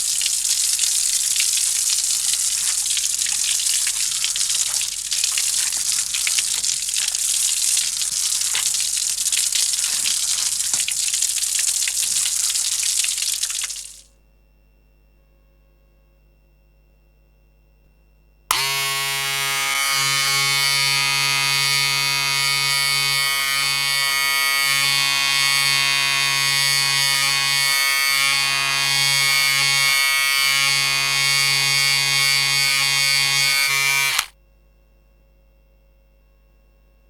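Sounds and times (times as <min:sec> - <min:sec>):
electric hair clippers buzzing: 0:00.0 - 0:12.5, 0:18.5 - 0:34.4.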